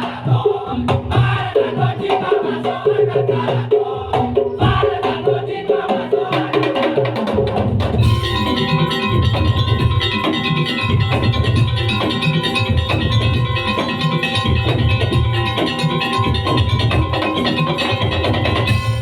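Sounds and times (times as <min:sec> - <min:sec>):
drum and wood-block strokes: 0:00.0 - 0:19.0
pitched percussion melody: 0:00.0 - 0:19.0
held higher tone: 0:08.0 - 0:19.0.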